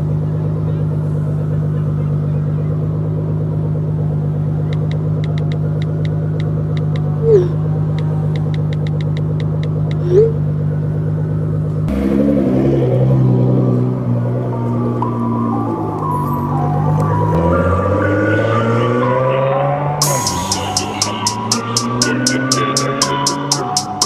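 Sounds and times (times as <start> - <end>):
car engine idling: 0.0 - 18.6, 20.0 - 24.0.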